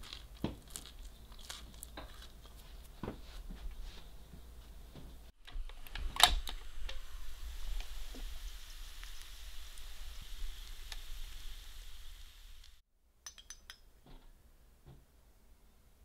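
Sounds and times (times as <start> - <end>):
pancake sizzling in waffle maker: 6.5 - 12.8
light clinks: 13.2 - 13.9.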